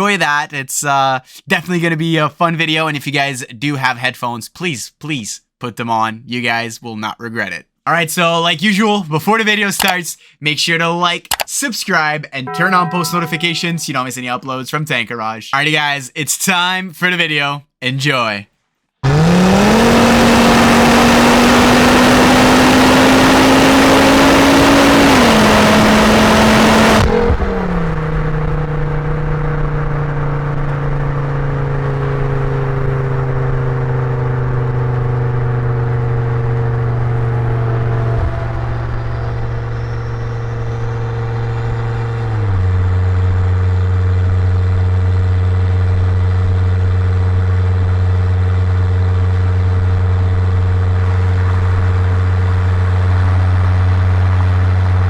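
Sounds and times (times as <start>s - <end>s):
car engine exhaust drone: 19.0s - 55.0s.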